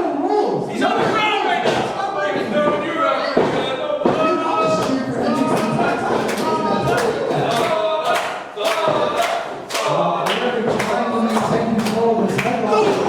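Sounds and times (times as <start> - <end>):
crowd chanting and shouting: 0.0 - 13.0.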